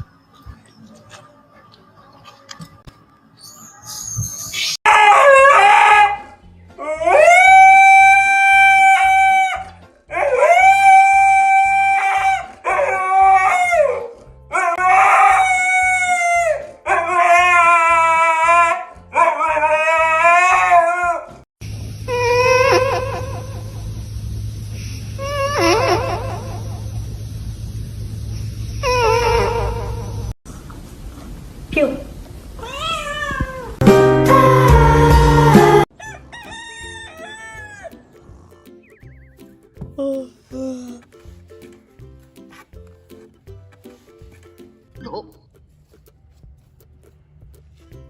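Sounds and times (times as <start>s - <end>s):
dog howling: 4.8s - 21.3s.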